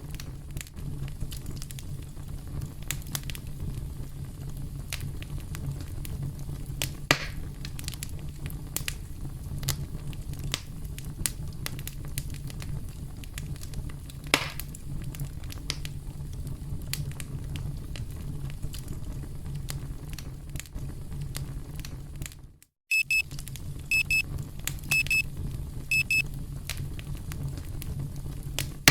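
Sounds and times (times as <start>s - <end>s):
campfire crackling and popping: 0.0s - 22.6s, 23.3s - 28.9s
timer alarm beeping: 22.9s - 23.2s, 23.9s - 24.2s, 24.9s - 25.2s, 25.9s - 26.2s.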